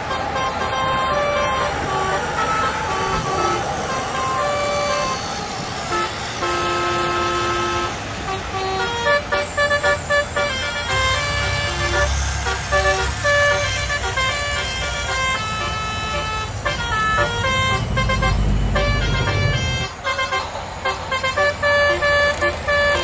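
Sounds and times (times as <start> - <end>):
electronic horn toots: 0.0 - 23.0
toy train motor and wheel rumble: 21.8 - 23.0.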